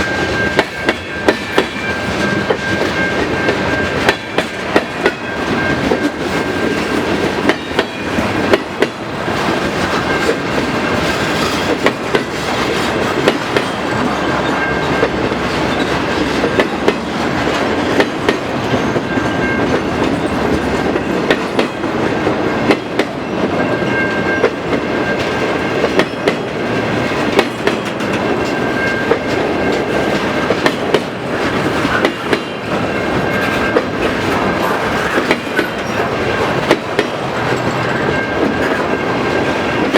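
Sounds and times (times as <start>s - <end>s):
train wheels clacking over rail joints: 0.0s - 39.9s.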